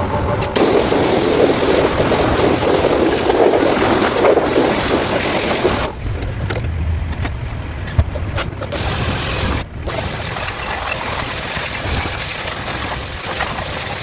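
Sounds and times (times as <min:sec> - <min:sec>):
car engine running: 0:00.0 - 0:10.1.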